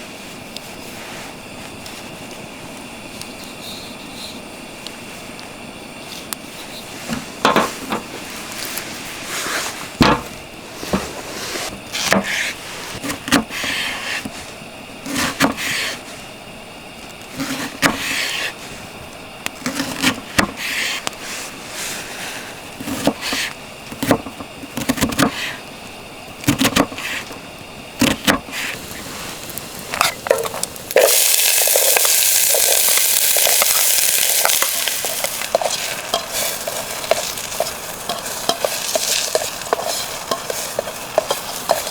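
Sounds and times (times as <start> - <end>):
utensil scraping frying pan: 15.0 - 16.0, 17.3 - 18.7, 19.6 - 25.6, 28.0 - 41.9
food sizzling in hot oil: 28.5 - 41.9.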